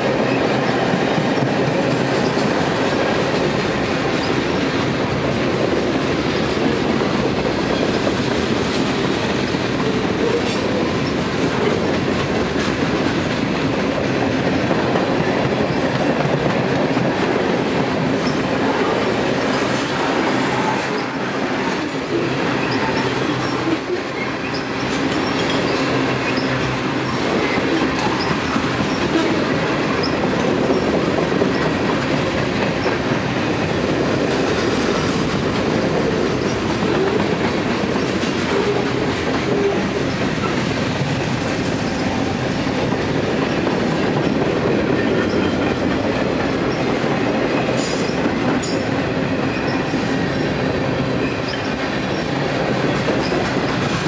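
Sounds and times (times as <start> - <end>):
freight cars rumbling and clattering: 0.0 - 54.0
high wheel squeal: 18.3 - 31.0.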